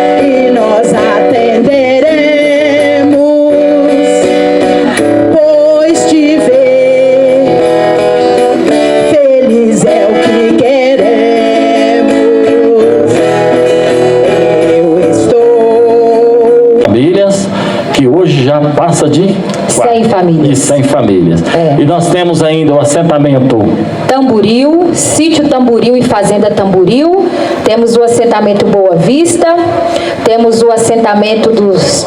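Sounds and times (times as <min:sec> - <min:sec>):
person singing: 0:00.0 - 0:16.9
acoustic guitar: 0:00.0 - 0:32.0.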